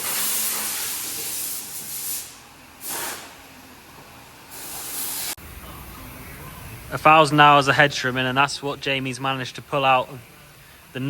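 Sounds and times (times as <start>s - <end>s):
compressed air hissing: 0.0s - 3.5s, 4.5s - 5.4s.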